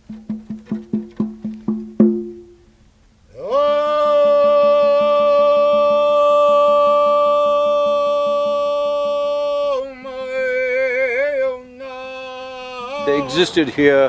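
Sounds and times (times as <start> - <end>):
fast percussive pulse: 0.0 - 2.7
voice chanting a long note: 3.3 - 13.6.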